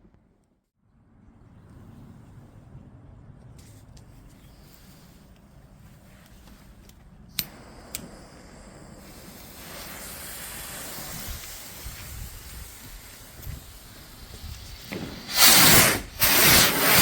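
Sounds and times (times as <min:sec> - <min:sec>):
firework cracks: 0:07.4 - 0:17.0
firework hissing: 0:07.4 - 0:17.0.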